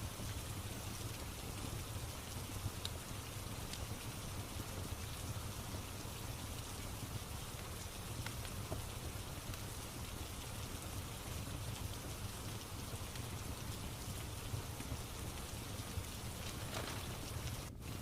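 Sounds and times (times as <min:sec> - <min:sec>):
fireplace crackling: 0:00.0 - 0:18.0
steady rain falling: 0:00.0 - 0:18.0
faint pops from fire: 0:01.0 - 0:05.4, 0:06.8 - 0:10.9.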